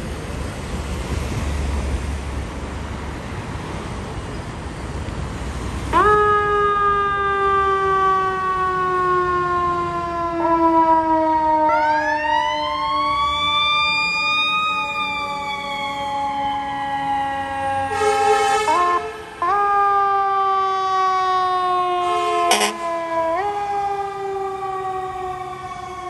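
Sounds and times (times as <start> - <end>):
fire truck sirens wailing: 5.4 - 26.0.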